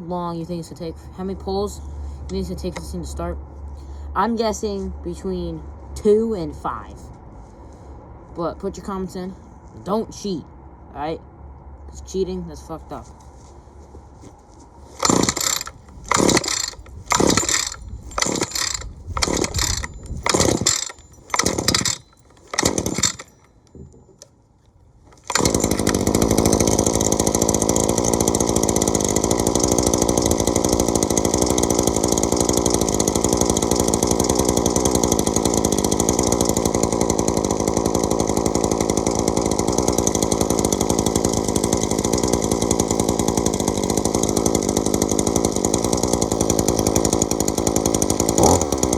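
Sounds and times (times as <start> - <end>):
string trimmer engine running: 1.2 - 3.2, 14.9 - 23.8, 25.1 - 48.9
recoil starter pulls: 14.9 - 48.9.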